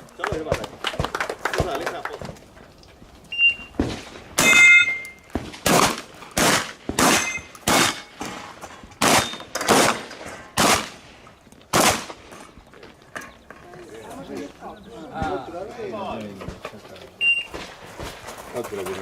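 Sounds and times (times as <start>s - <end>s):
shotgun shots: 3.7s - 12.4s
metallic ring of steel targets: 4.4s - 5.2s, 7.0s - 9.6s.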